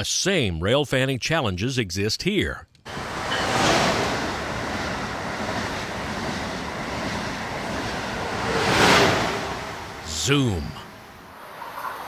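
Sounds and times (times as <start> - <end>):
electric train rushing past: 2.9 - 12.0.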